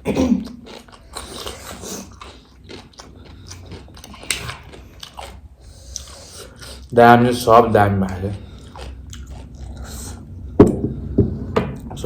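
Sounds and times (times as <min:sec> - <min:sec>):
person chewing crunchy snack: 0:00.0 - 0:06.9, 0:08.1 - 0:10.3.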